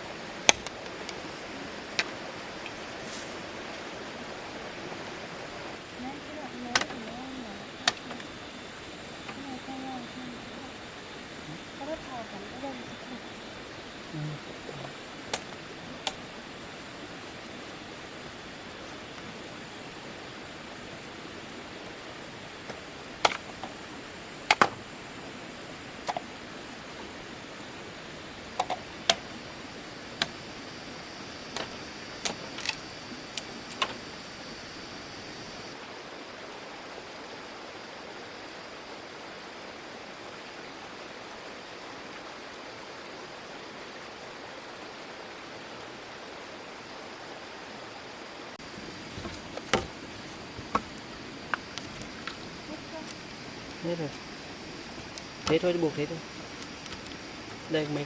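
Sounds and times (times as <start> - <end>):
steady rushing hiss: 0.0 - 58.0
sharp clicks and knocks: 24.5 - 24.8.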